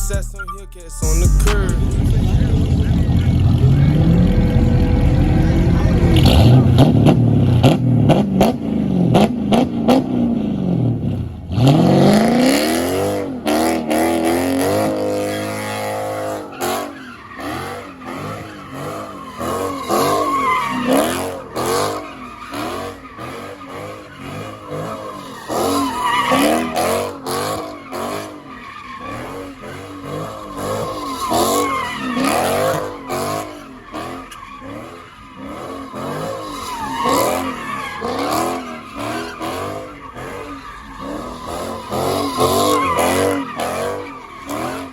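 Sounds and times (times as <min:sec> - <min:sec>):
car engine revving: 0:01.0 - 0:44.9
tyres squealing: 0:13.4 - 0:44.9.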